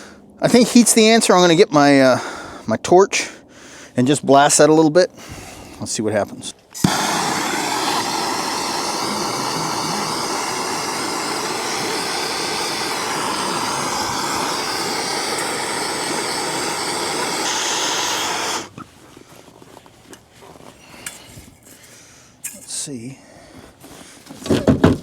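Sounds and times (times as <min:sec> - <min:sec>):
torch flame blasting: 0:06.8 - 0:18.8.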